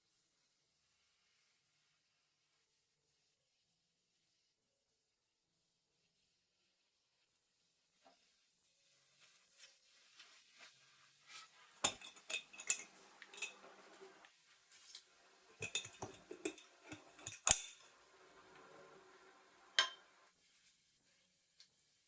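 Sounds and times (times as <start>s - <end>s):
dishes and utensils clinking: 11.8s - 17.9s, 19.8s - 20.2s.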